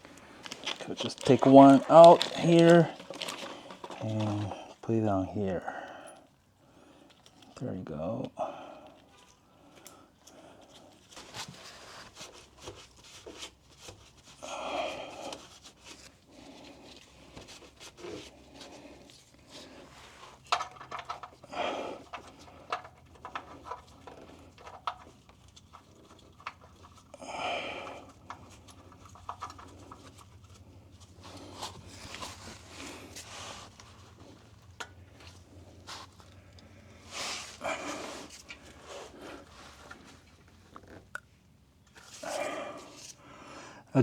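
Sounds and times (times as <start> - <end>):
small handling clicks: 20.4 - 21.4.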